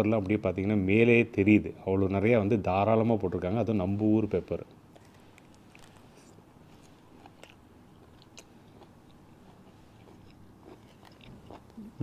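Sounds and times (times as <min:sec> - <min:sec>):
man chewing food: 0:04.8 - 0:12.0.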